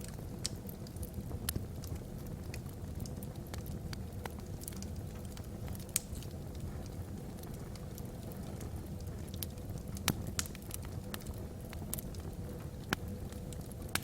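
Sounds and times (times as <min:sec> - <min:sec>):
low rumble of fire flames: 0:00.0 - 0:14.0
wood fire crackles and pops: 0:00.0 - 0:14.0.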